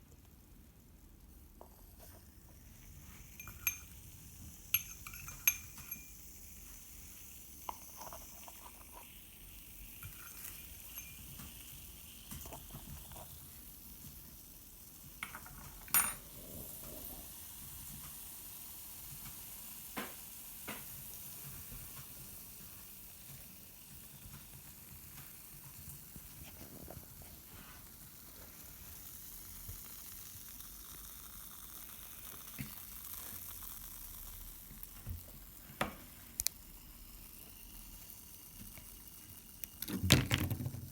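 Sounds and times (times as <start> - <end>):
glass or metal clinks: 4.8 - 6.2.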